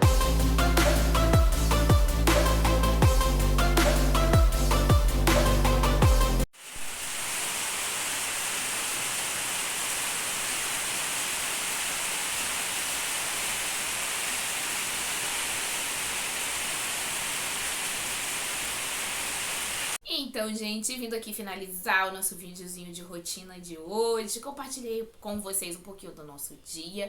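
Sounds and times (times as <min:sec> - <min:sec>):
background music: 0:00.0 - 0:06.5
steady rain falling: 0:06.6 - 0:20.0.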